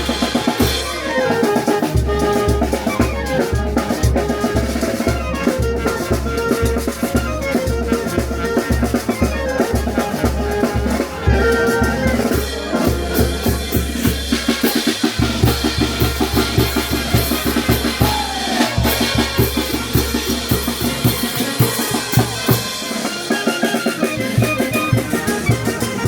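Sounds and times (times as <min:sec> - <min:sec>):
snare and cymbal strokes: 0:00.0 - 0:02.9, 0:12.3 - 0:26.0
brass band playing: 0:00.0 - 0:26.0
bass drum beating: 0:01.9 - 0:22.8.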